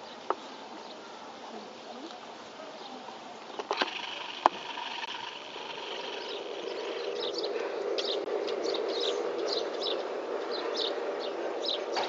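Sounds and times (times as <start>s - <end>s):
small birds chirping: 0.0s - 12.0s
steady hum: 3.6s - 11.6s.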